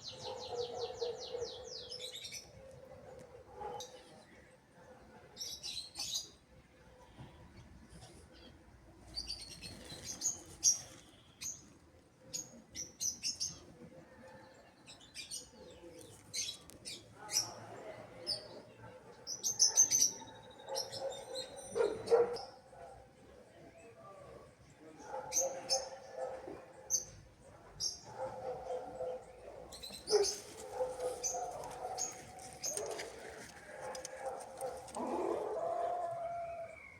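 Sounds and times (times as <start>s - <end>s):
small birds chirping: 24.8s - 36.9s.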